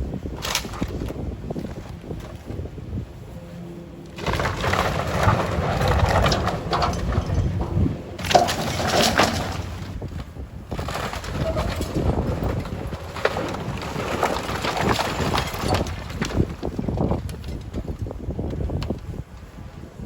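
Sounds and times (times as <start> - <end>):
wood and debris crashing: 4.1 - 18.2.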